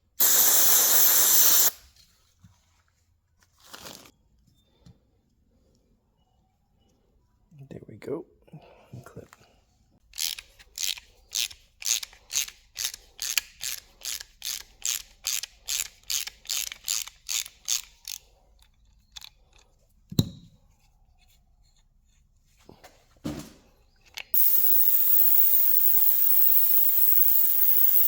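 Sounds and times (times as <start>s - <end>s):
ratchet wrench clicking: 24.4s - 28.0s.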